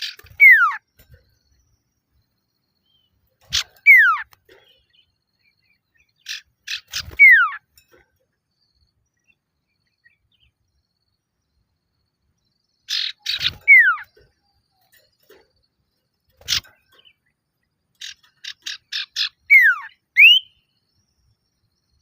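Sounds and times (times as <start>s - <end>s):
bird calling chips and whistle: 0.0s - 1.2s, 3.4s - 4.9s, 6.2s - 7.8s, 12.9s - 15.1s, 18.0s - 20.6s.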